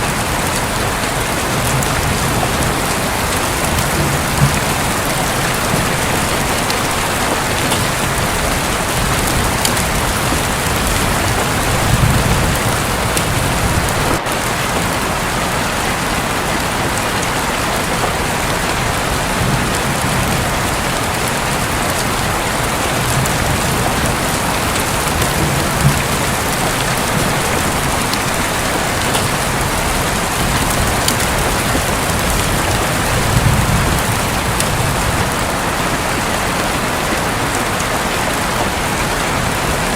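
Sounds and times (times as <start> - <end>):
heavy rain on a roof: 0.0 - 39.9
thunder rumbling: 0.0 - 39.9.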